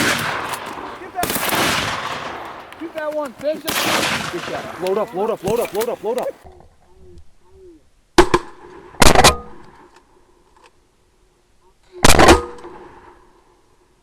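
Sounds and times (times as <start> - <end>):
shotgun blasts with echo: 0.0 - 6.2.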